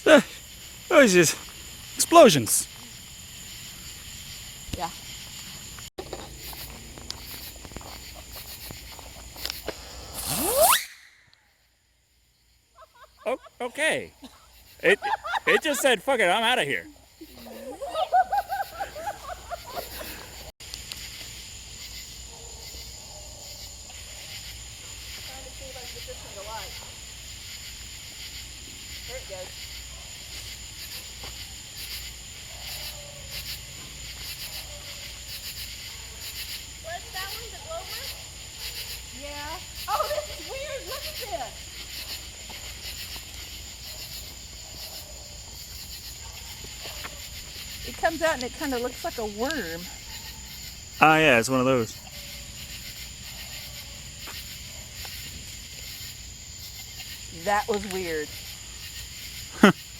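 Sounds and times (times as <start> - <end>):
night insects chirping: 0.0 - 59.9
firework whistle rising: 10.0 - 11.5
steady hiss with light crackles: 18.6 - 22.2.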